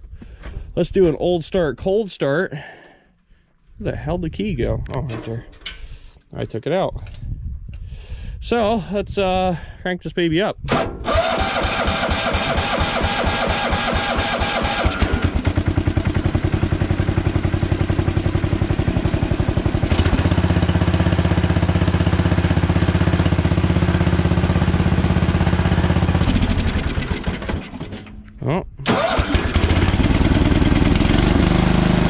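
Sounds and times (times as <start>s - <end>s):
starter cranking: 10.7s - 15.6s, 26.3s - 31.6s
tractor engine running: 10.7s - 32.0s.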